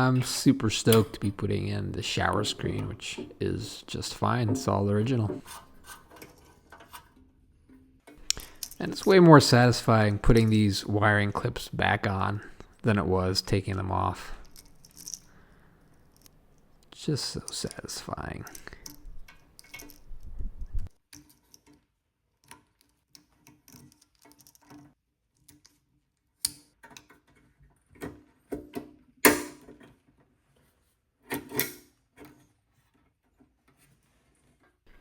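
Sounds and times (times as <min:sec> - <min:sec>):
parts clicking and clunking: 0:00.0 - 0:11.2, 0:11.8 - 0:25.6.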